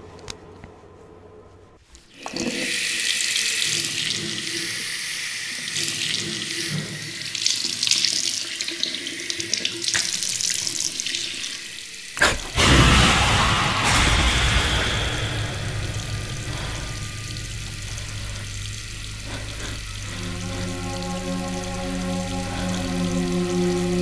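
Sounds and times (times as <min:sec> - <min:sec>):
tap water splashing into basin: 0:05.7 - 0:11.3.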